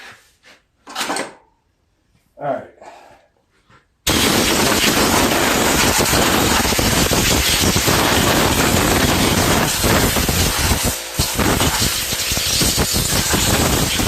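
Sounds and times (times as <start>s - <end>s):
strong air blast: 4.1s - 14.0s.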